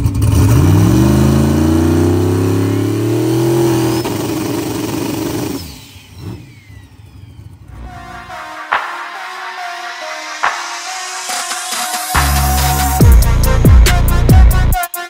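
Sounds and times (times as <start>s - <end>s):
drag car engine revving: 0.0s - 8.2s.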